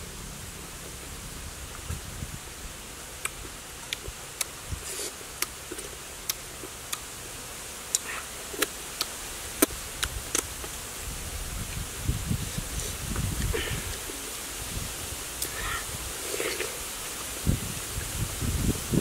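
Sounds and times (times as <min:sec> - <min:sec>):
steady hiss: 0:00.0 - 0:19.0
person chewing and lip smacking: 0:03.2 - 0:07.1, 0:07.9 - 0:10.5.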